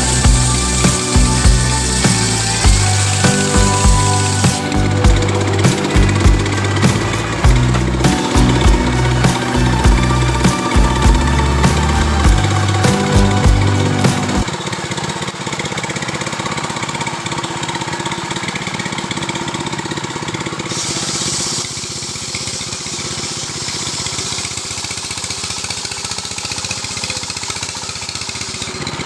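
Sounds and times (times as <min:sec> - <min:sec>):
high hiss burst: 0:00.0 - 0:14.5
chainsaw engine running: 0:00.0 - 0:29.0.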